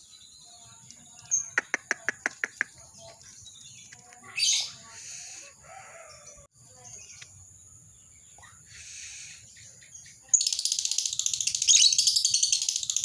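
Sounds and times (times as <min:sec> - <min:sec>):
bird chattering calls: 0:01.3 - 0:05.6, 0:08.4 - 0:13.0
bird screeching: 0:04.4 - 0:06.2, 0:08.7 - 0:09.5.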